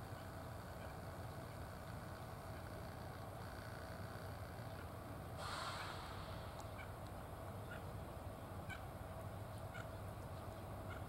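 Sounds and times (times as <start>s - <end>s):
diesel railcar rumble: 4.2s - 11.0s
brief hiss: 5.4s - 6.8s.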